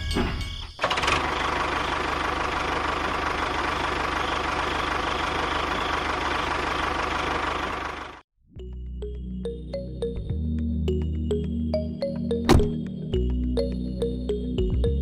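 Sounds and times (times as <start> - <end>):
small engine running: 0.8 - 8.2.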